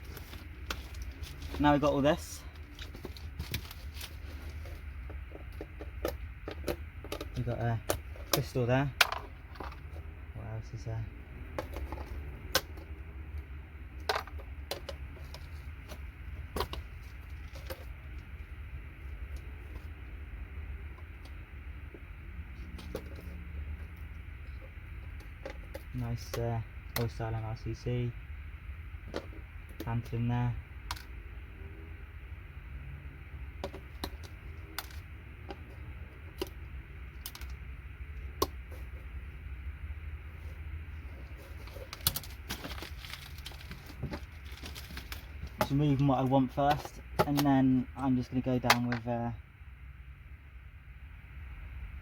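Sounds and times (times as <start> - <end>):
low hum: 0.0 - 52.0
electronic parts clicking: 33.6 - 39.2, 41.2 - 47.8.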